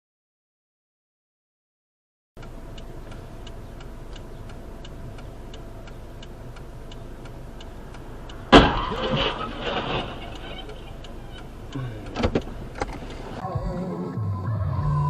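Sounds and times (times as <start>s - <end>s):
regular ticking: 2.4s - 13.4s
road rumble: 2.4s - 15.0s
car crash: 8.5s - 10.8s
crunching and scraping: 8.5s - 11.4s.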